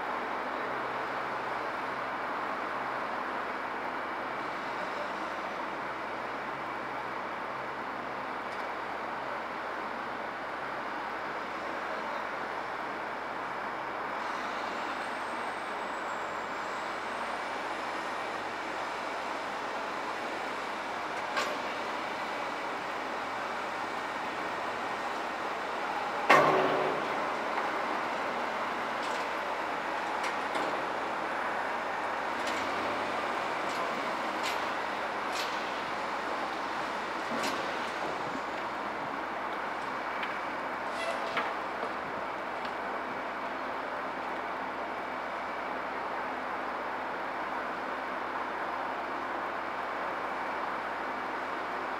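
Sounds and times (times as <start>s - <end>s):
heavy truck engine running: 0.1s - 46.2s.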